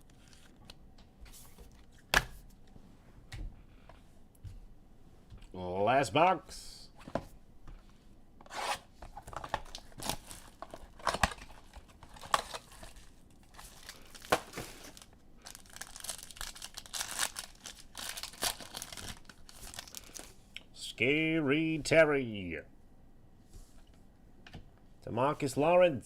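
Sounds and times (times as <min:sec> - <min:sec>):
packaging tearing and crinkling: 0:09.2 - 0:20.3.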